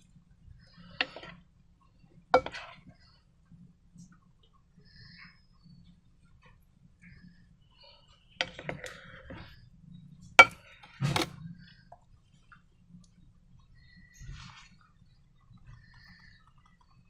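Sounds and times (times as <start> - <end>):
hard objects clicking and knocking: 2.4 - 2.9, 10.2 - 11.4.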